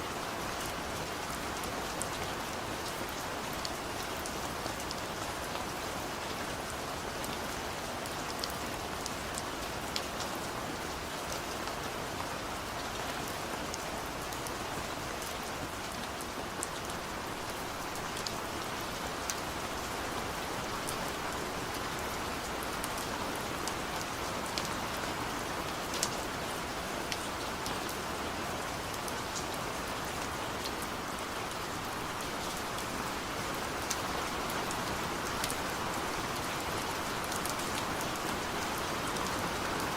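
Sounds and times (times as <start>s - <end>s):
heavy rain falling: 0.1s - 39.9s.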